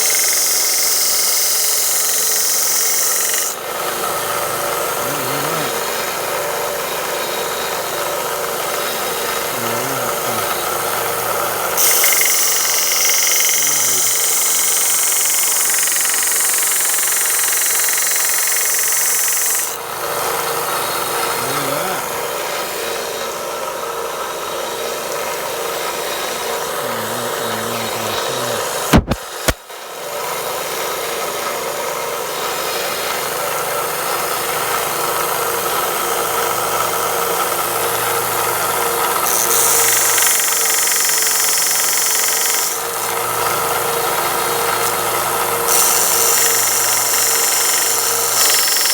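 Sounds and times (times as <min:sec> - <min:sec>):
wood being sanded: 0:00.0 - 0:23.6, 0:24.6 - 0:29.6, 0:32.6 - 0:48.9
belt sander running: 0:00.0 - 0:48.9
sharp knock: 0:28.9 - 0:29.6.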